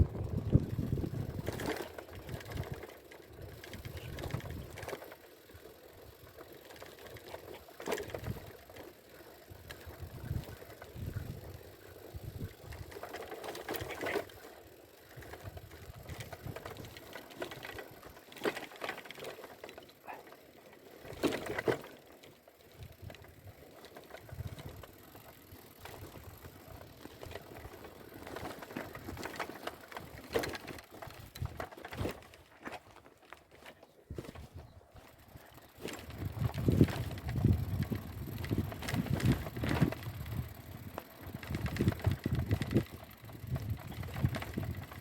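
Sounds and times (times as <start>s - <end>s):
bicycle rattling and clicking: 0.0s - 45.0s
bicycle knocking over bumps: 12.2s - 20.1s, 21.0s - 45.0s.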